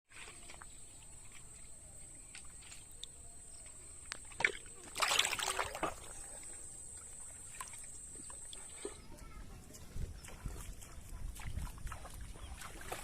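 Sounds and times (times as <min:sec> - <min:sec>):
water splashed by hand: 0:03.7 - 0:09.0, 0:10.2 - 0:13.0.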